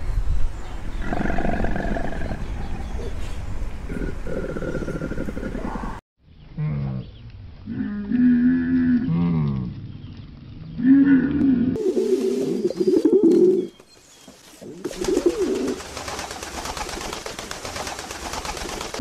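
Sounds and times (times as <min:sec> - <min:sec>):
dove cooing: 0:03.9 - 0:06.0, 0:11.8 - 0:13.7, 0:14.8 - 0:15.8.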